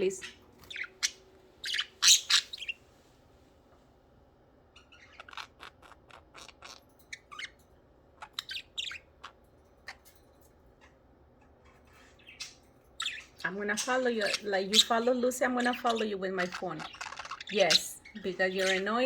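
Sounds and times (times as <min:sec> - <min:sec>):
budgerigars chirping: 0:00.0 - 0:02.9, 0:04.7 - 0:07.6, 0:08.2 - 0:10.1, 0:10.8 - 0:19.0.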